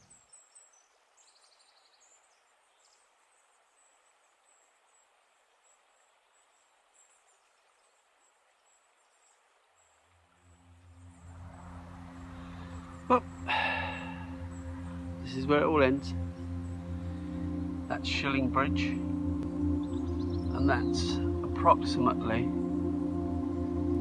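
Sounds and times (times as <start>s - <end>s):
high bird chirps: 18.9s - 21.4s.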